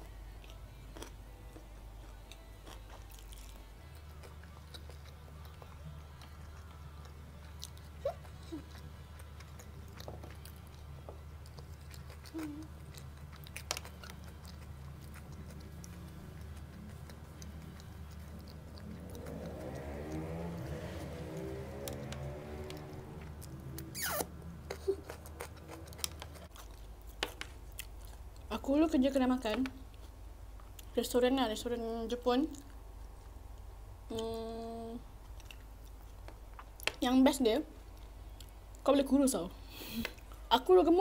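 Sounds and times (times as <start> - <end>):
person chewing: 0.1 - 20.5, 22.5 - 28.5, 35.2 - 36.9.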